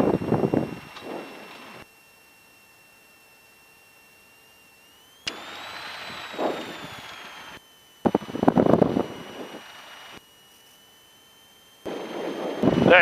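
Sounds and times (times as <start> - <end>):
radio transmission noise: 0.1 - 1.8, 5.3 - 13.0
rising and falling tone: 4.9 - 10.2
garbled radio pulses: 5.5 - 10.3, 11.6 - 13.0.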